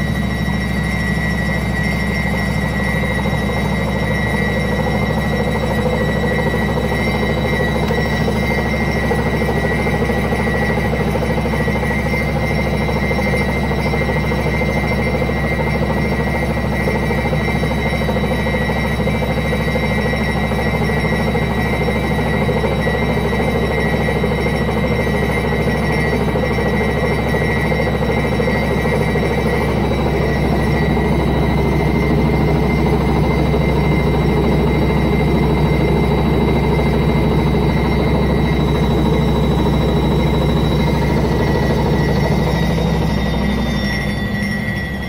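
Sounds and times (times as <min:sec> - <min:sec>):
washing machine drum spinning: 0:00.0 - 0:45.0.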